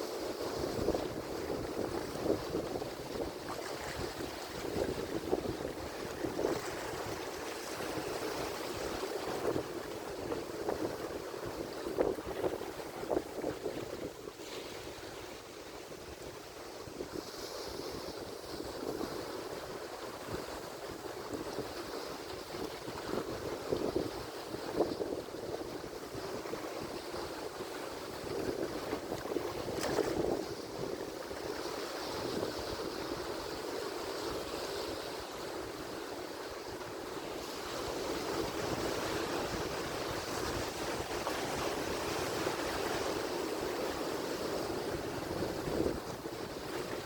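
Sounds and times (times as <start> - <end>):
ocean waves breaking: 0.0 - 24.9.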